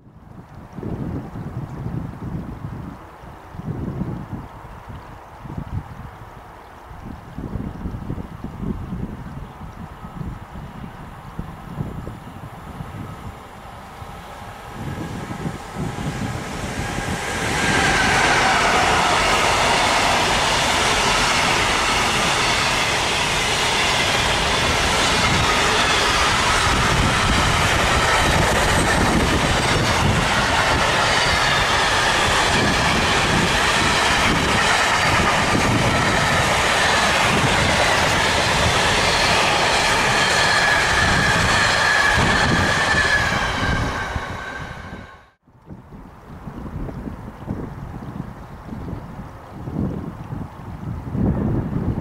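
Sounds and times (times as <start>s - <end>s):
train wheels rumbling on rail: 11.4s - 45.4s
high wavering wheel squeal: 14.5s - 45.3s.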